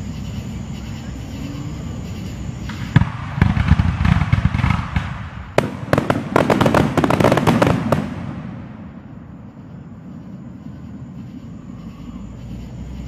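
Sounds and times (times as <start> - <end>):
crackling firework pops: 2.6 - 8.8
firework bangs: 2.6 - 10.3.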